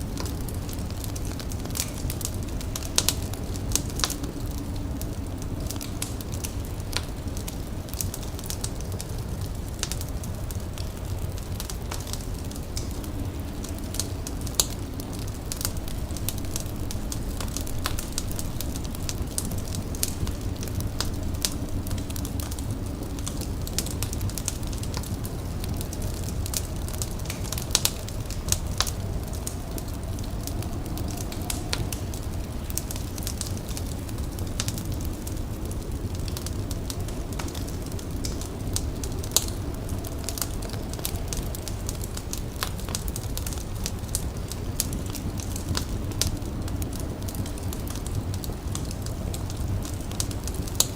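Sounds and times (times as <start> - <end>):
fire crackling and popping: 0.0 - 50.9
low steady rumble: 0.0 - 50.9.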